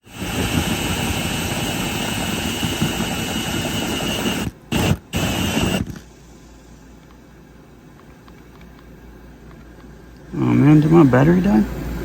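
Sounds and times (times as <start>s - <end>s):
battery motor whooshing and whining: 0.0s - 6.1s.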